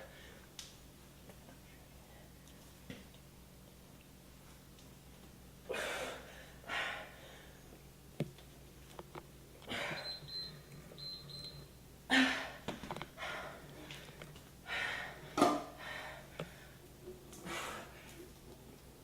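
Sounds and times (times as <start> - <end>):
person breathing hard: 12.1 - 16.8.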